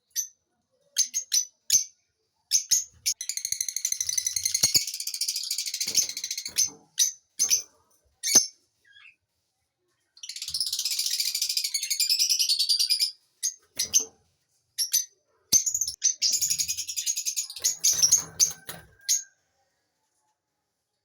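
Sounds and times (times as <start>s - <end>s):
lovebirds twittering: 2.6s - 9.2s.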